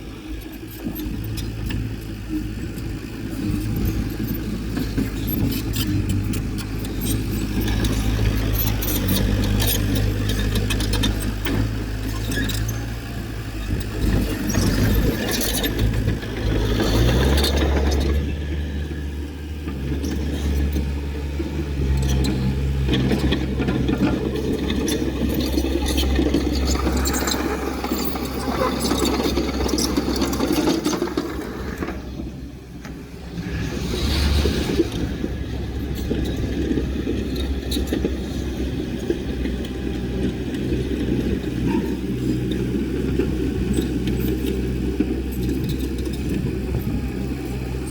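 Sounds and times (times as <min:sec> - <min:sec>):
diesel engine running: 0:00.0 - 0:47.9
metal rattles and clanks: 0:19.7 - 0:46.9.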